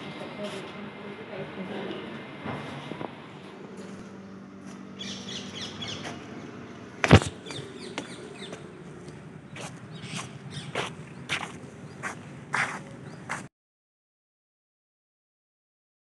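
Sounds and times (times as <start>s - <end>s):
birds chirping: 4.9s - 13.5s.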